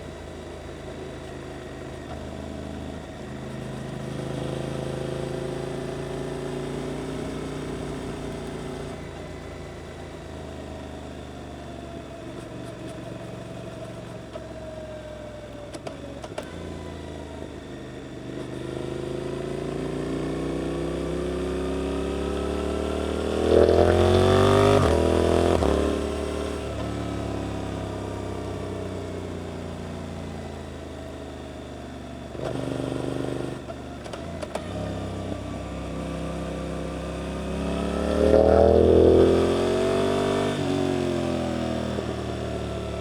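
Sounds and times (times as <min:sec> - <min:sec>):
motorcycle engine revving: 0:18.0 - 0:31.4, 0:32.3 - 0:43.0.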